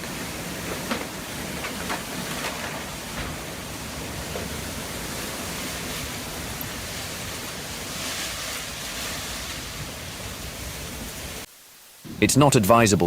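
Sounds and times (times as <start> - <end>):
wind buffeting microphone: 0.0 - 11.5.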